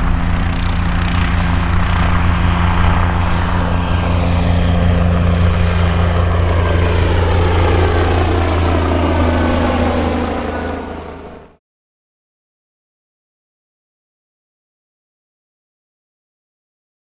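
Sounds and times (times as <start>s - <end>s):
helicopter rotor and engine: 0.0s - 11.6s.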